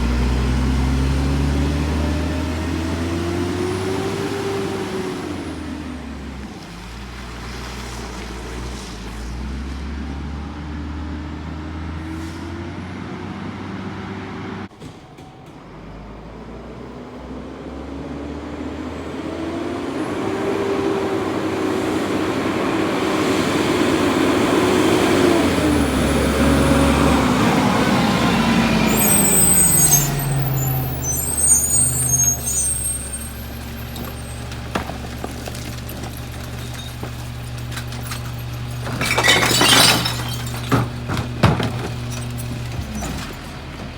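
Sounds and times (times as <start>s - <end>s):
garbage truck diesel engine revving: 0.0s - 6.4s, 15.9s - 43.9s
brake squeals: 0.0s - 13.8s, 19.4s - 43.9s.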